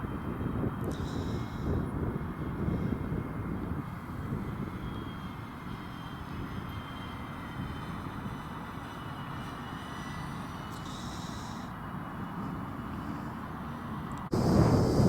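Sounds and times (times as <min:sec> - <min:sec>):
wind rumble on microphone: 0:00.0 - 0:08.6, 0:14.1 - 0:15.0
propeller whine: 0:00.0 - 0:15.0.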